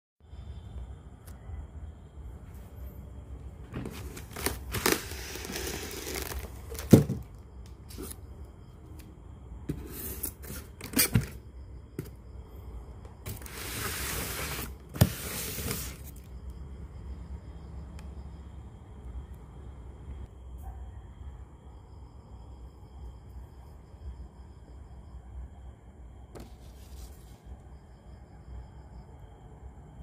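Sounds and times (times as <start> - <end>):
handling noise rustling and scraping: 3.5 - 8.3, 9.7 - 11.4, 13.2 - 16.3, 26.4 - 27.5.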